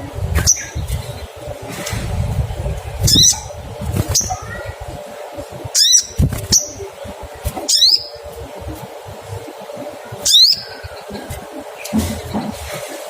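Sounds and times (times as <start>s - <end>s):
bird chirping: 0.4s - 1.6s, 3.0s - 4.7s, 5.6s - 8.4s, 10.1s - 12.6s.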